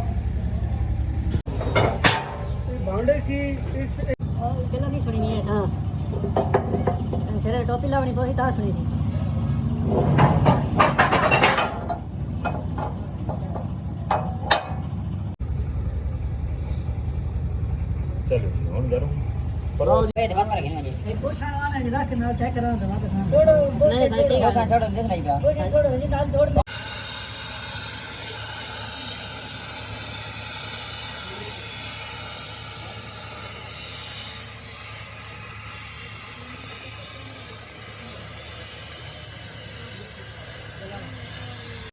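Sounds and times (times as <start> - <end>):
metal tools clinking: 10.2 - 14.9.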